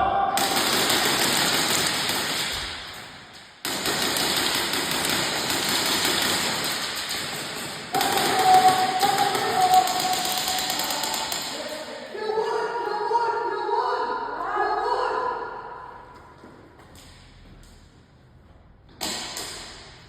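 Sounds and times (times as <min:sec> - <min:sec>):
airsoft guns firing full-auto: 0:00.4 - 0:11.7.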